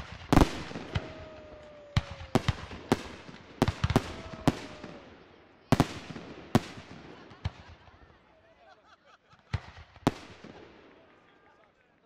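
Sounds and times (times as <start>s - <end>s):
fireworks bangs with echo: 0.0s - 7.9s, 9.5s - 11.1s.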